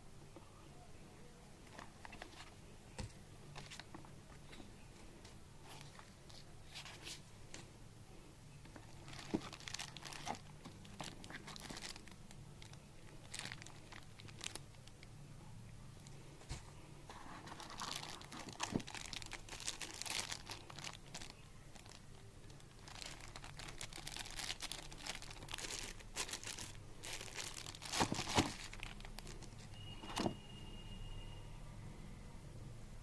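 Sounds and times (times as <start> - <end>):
plastic packaging crinkling: 1.6 - 2.6, 8.6 - 15.1, 16.0 - 30.3.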